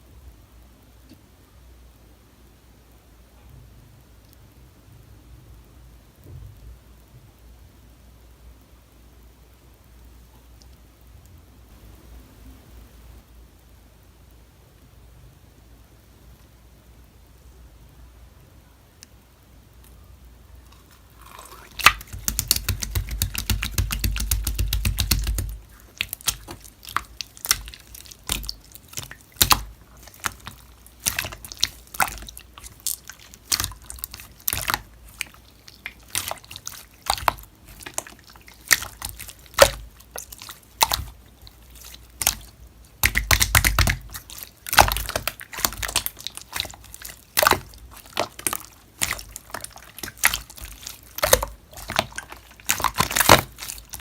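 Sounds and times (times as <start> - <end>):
slime wet clicks and pops: 21.6 - 41.2, 41.8 - 54.0.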